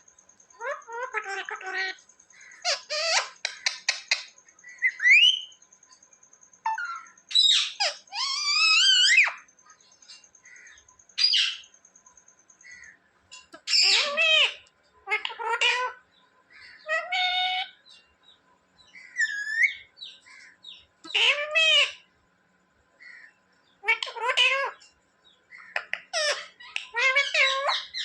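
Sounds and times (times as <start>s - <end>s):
parrot calls: 0.6s - 5.5s, 6.6s - 9.5s, 13.4s - 16.0s, 16.6s - 17.9s, 19.1s - 22.0s, 23.0s - 24.8s, 25.6s - 28.0s.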